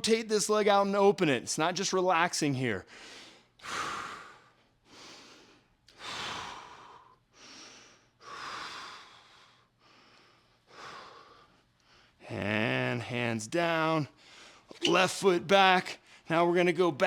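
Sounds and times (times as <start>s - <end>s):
man breathing deeply: 2.9s - 12.2s, 14.2s - 14.8s.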